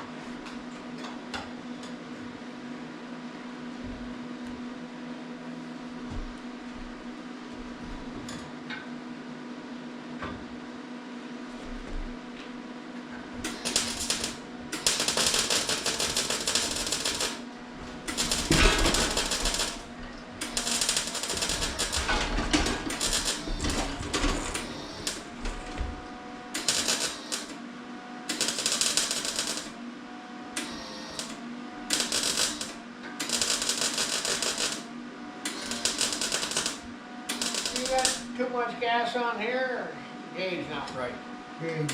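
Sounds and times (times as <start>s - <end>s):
steady hum: 11.4s - 41.9s
welder arc crackling: 13.5s - 17.4s, 18.1s - 22.0s, 22.9s - 23.6s, 24.6s - 25.3s, 26.6s - 27.5s, 28.3s - 29.7s, 31.1s - 34.8s, 35.5s - 38.4s.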